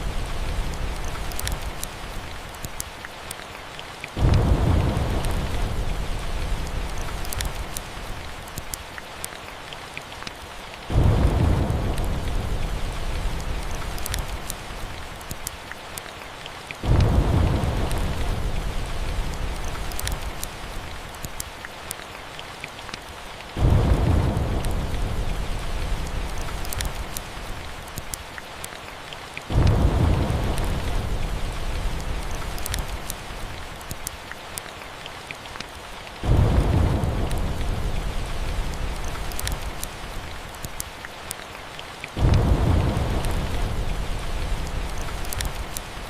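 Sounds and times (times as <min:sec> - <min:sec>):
low thunder rumbles: 0:00.0 - 0:02.5, 0:04.2 - 0:08.5, 0:10.9 - 0:15.2, 0:16.8 - 0:21.1, 0:23.5 - 0:27.8, 0:29.5 - 0:33.8, 0:36.2 - 0:40.6, 0:42.2 - 0:46.0
steady rain: 0:00.0 - 0:46.0
wood fire crackling: 0:00.0 - 0:46.0.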